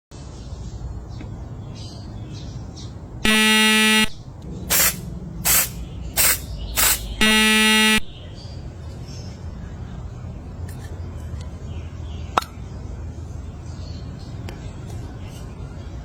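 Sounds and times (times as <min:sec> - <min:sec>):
buzzy vehicle horn honks: 0:03.3 - 0:04.2, 0:06.8 - 0:08.2
short hissing bursts: 0:04.7 - 0:08.0.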